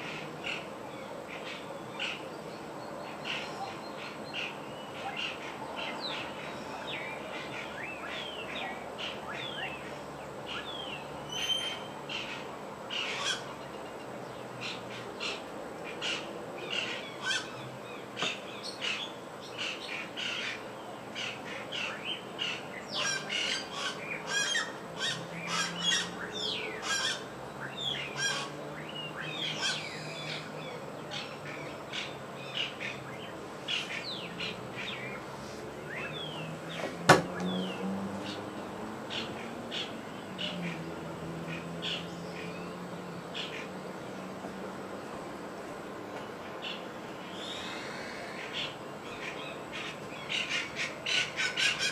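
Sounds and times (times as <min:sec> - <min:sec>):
chorus of birds chirping: 0:00.0 - 0:51.9.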